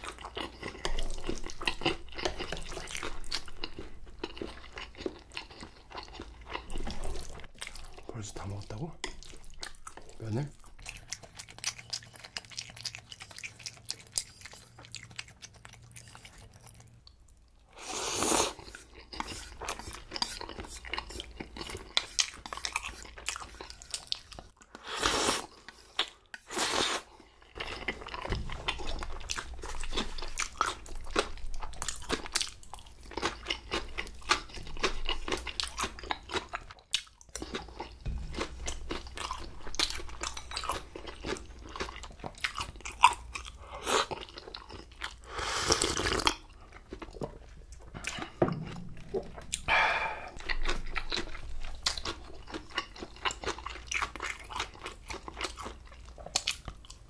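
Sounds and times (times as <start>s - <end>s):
chewing and crunching noodles: 0.0s - 57.0s
wet mouth clicks: 49.1s - 50.7s.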